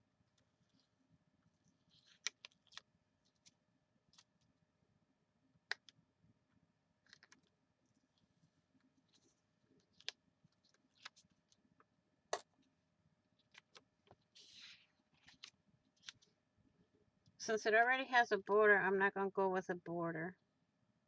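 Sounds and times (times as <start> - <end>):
paper and craft supplies handled: 1.6 - 4.5, 7.1 - 11.6, 13.4 - 16.4.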